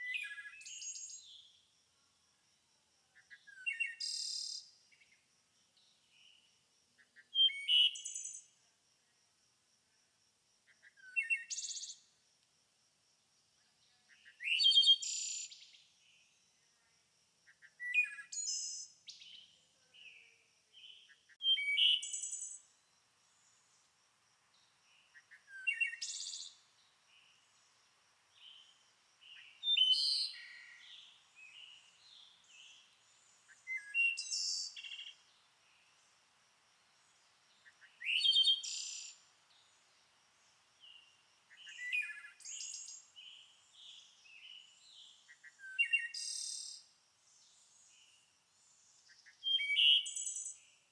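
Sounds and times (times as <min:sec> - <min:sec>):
songbird singing: 0:00.0 - 0:01.7, 0:03.0 - 0:08.6, 0:10.7 - 0:12.2, 0:13.6 - 0:16.9, 0:17.5 - 0:50.9
softer bird chirps: 0:17.5 - 0:23.8, 0:24.5 - 0:36.0, 0:37.5 - 0:39.9, 0:40.8 - 0:46.8.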